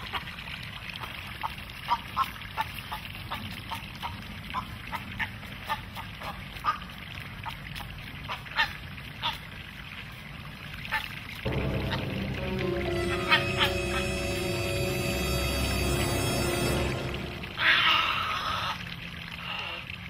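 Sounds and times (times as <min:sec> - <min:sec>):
music: 0:11.5 - 0:18.5.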